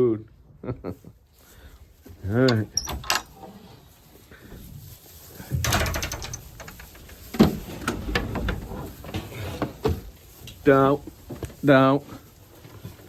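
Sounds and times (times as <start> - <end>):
mechanical clattering and knocks: 5.5 - 10.0.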